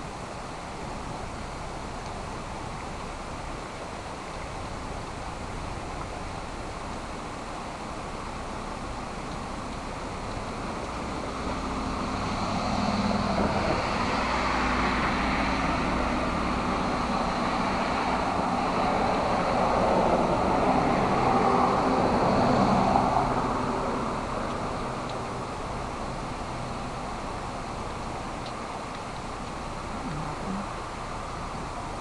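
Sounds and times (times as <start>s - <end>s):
steady rain hiss: 0.0s - 32.0s
vehicle tyres hissing on wet road: 0.0s - 32.0s.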